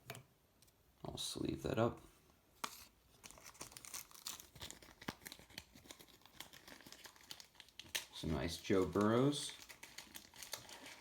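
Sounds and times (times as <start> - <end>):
plastic sleeve crinkling: 2.6 - 11.0.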